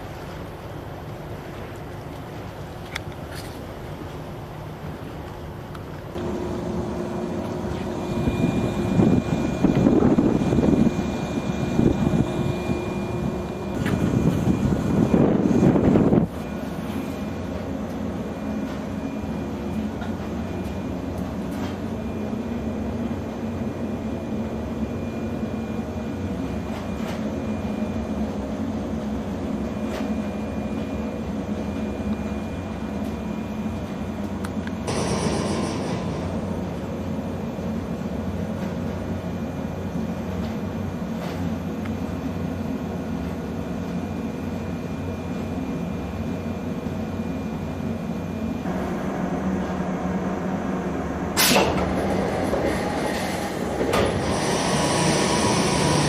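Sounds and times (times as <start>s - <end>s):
electric train humming: 0.0s - 56.0s.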